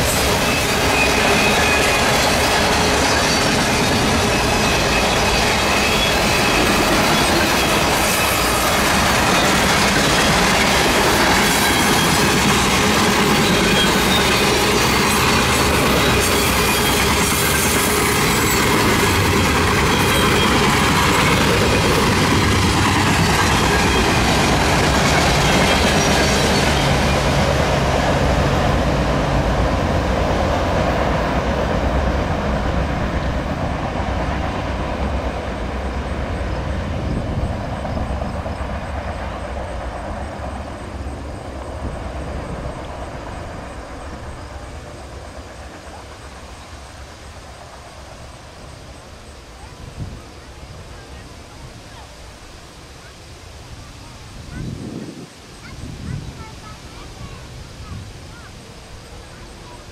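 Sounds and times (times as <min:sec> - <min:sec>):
freight train rolling past: 0:00.0 - 0:59.9.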